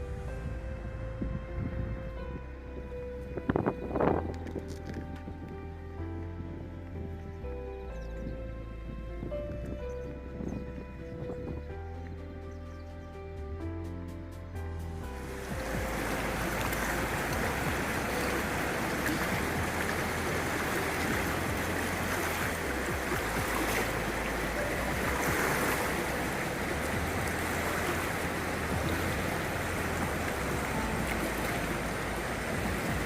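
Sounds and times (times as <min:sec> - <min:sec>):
flooded river roaring: 0:15.0 - 0:33.0.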